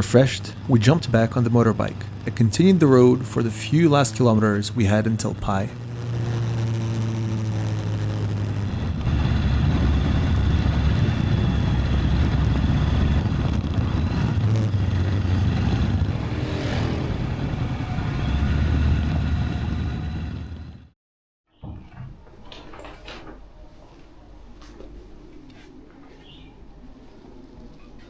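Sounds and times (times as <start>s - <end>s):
dense low rumble: 0.0s - 20.9s
motorbike engine running: 0.0s - 20.9s.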